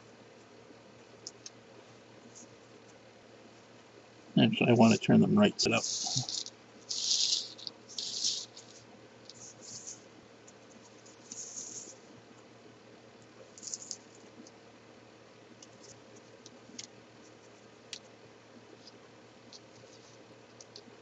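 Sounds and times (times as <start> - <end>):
puzzle pieces scratching and clicking: 5.7 - 10.0.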